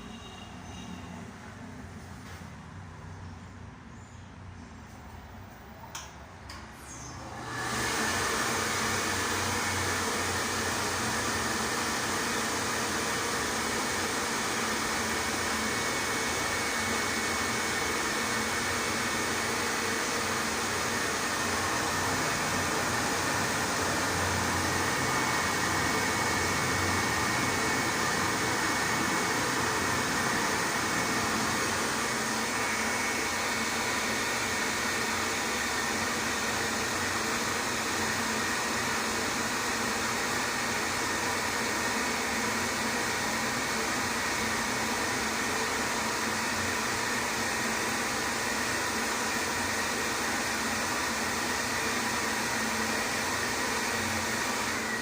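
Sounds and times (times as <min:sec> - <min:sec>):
faint fan motor whine: 0:00.0 - 0:38.4
hand dryer blowing air: 0:07.1 - 0:55.0.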